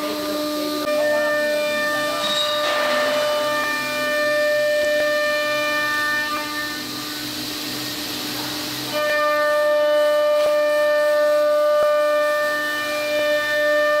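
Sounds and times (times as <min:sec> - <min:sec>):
louder whine: 0:00.0 - 0:14.0
router spindle whine: 0:00.0 - 0:14.0.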